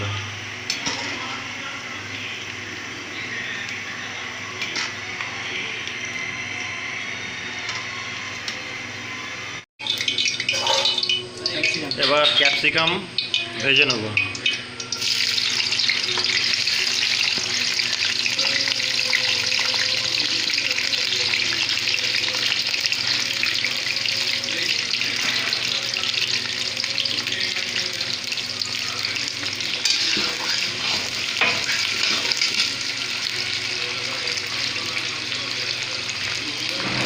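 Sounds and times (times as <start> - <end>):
vegetables sizzling in hot oil: 9.8 - 37.0.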